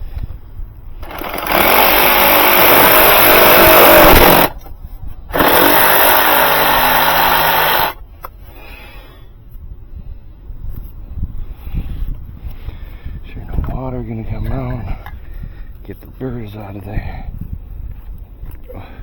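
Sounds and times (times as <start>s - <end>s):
power tool running: 1.0s - 4.6s, 5.3s - 8.0s.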